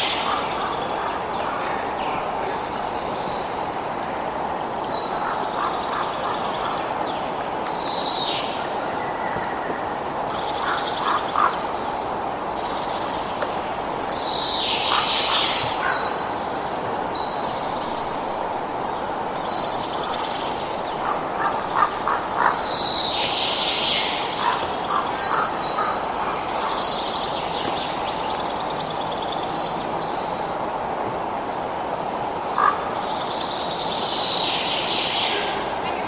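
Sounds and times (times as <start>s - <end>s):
birds chirping and calling: 0.0s - 3.5s.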